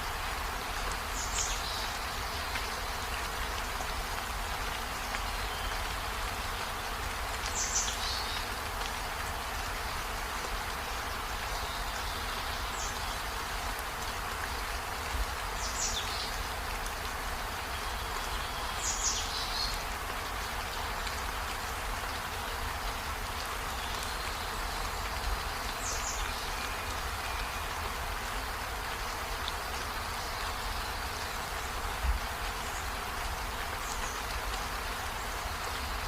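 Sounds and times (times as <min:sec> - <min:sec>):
steady rain hiss: 0:00.0 - 0:36.0.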